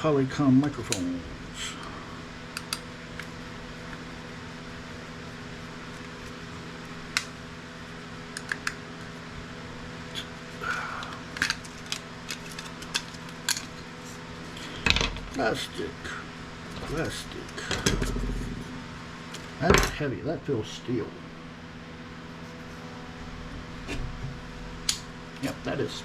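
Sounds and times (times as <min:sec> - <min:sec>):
steady low hum: 0:00.0 - 0:26.0
plastic parts clicking: 0:11.4 - 0:13.8.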